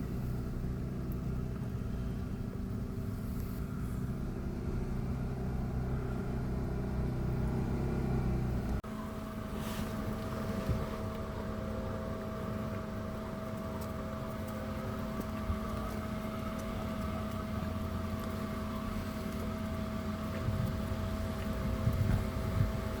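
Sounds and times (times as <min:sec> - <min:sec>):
steady mechanical hum: 0:08.6 - 0:23.0.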